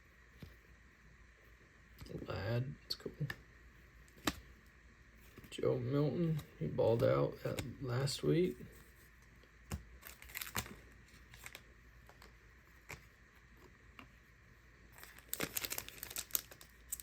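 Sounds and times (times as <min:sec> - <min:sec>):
trading cards being handled: 0:08.4 - 0:14.2, 0:14.9 - 0:17.0
plastic wrapper tearing open: 0:10.0 - 0:10.8, 0:15.0 - 0:17.0.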